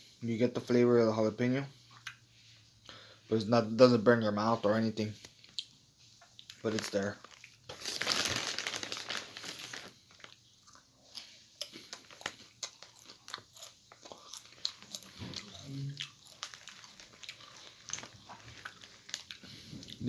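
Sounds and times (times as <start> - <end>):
potato chips crunching: 6.4 - 20.0.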